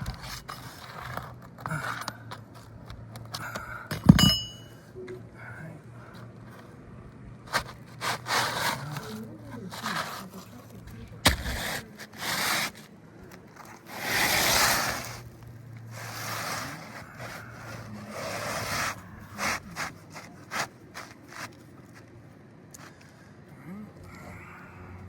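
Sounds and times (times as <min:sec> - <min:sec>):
tool scraping roof shingles: 0:00.0 - 0:02.8, 0:07.5 - 0:21.6.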